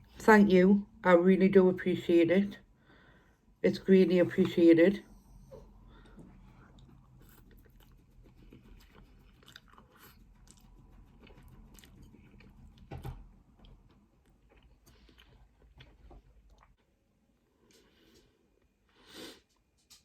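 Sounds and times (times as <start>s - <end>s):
chewing and slurping noodles: 6.4s - 12.9s.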